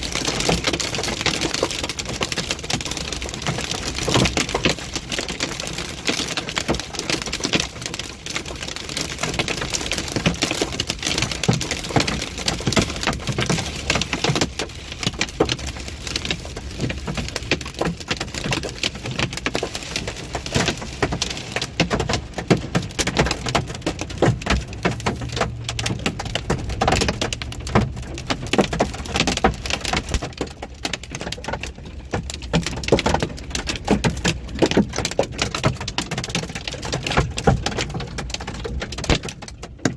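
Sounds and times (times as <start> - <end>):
hailstones clattering: 0.0 - 39.9.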